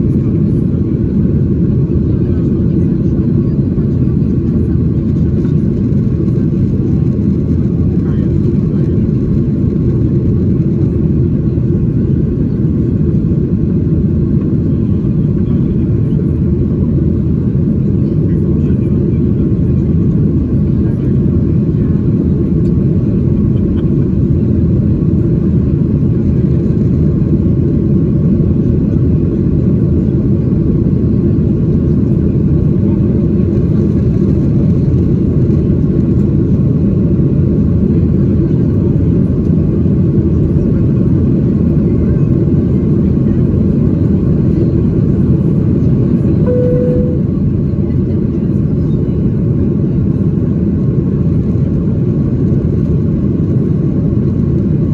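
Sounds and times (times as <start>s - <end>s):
jet engines rumbling in cabin: 0.0s - 54.9s
single cabin tone: 46.5s - 47.5s.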